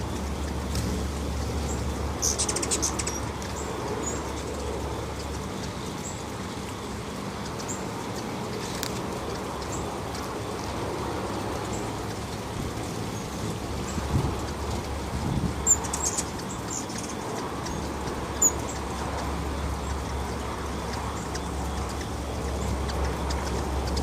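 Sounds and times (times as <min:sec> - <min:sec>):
hummingbirds chipping: 0:00.0 - 0:24.0.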